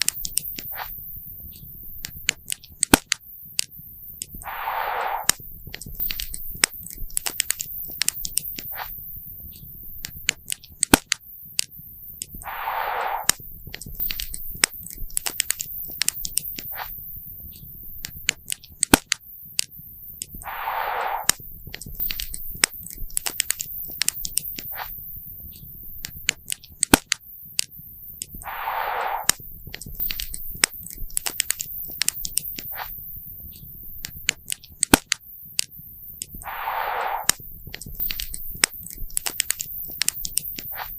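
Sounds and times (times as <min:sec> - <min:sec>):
short hiss: 0:04.4 - 0:05.4, 0:12.4 - 0:13.4, 0:20.4 - 0:21.4, 0:28.4 - 0:29.5, 0:36.4 - 0:39.0.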